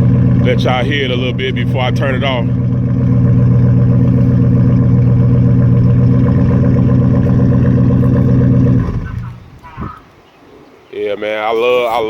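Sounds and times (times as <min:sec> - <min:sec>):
car engine idling loudly: 0:00.0 - 0:09.6.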